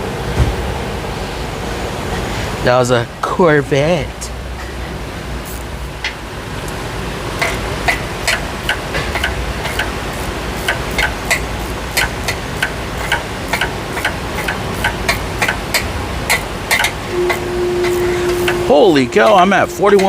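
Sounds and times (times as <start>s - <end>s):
low shop hum: 0.0s - 20.0s
hand ratchet clicking: 7.4s - 18.6s.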